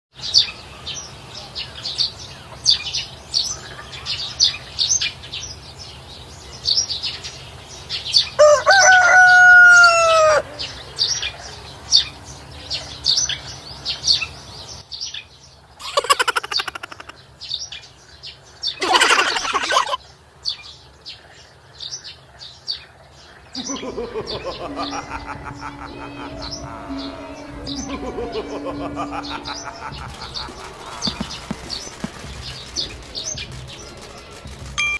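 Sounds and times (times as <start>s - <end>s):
rooster crowing: 8.4s - 10.8s, 23.6s - 32.3s
small birds chirping: 9.8s - 34.7s
short bursts of noise: 28.8s - 34.9s.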